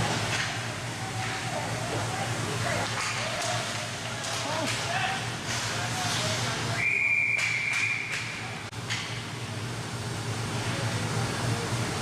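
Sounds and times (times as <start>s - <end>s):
low machinery hum: 0.0s - 12.0s
high whistle blast: 6.8s - 8.2s.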